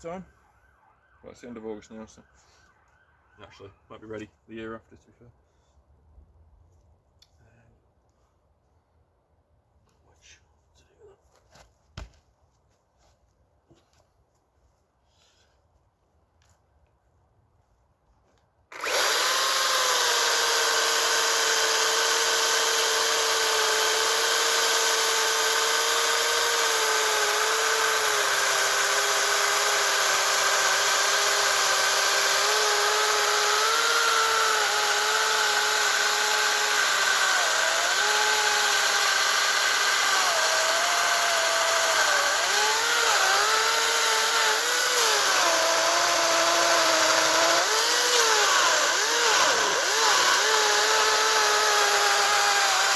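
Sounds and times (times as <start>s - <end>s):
cordless chainsaw cutting log: 18.7s - 52.9s.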